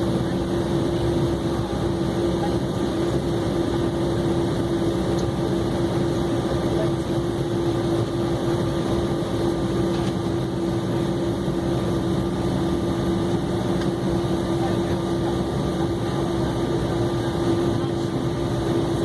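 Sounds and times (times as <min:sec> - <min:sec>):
jet engines idling: 0:00.0 - 0:19.0.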